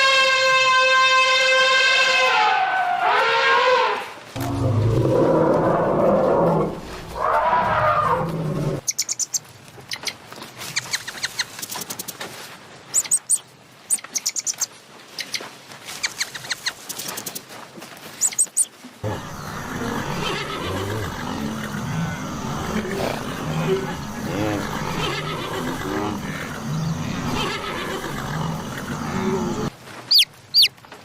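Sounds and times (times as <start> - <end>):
rough animal sound: 2.3 - 8.8, 19.0 - 29.8
birds chirping: 18.2 - 30.7
low-pitched animal calls: 19.0 - 30.7.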